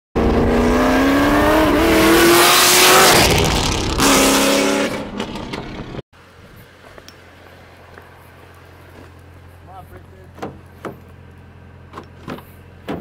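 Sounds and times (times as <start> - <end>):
car engine at full throttle: 0.2 - 6.0.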